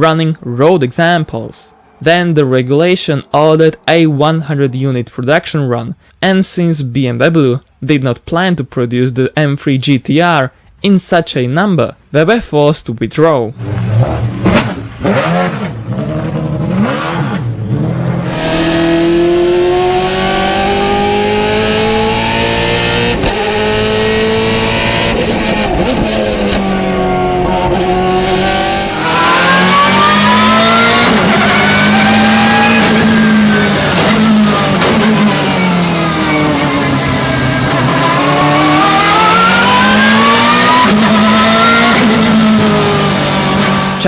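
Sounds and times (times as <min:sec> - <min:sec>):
race car engine at high revs: 0:13.6 - 0:44.0.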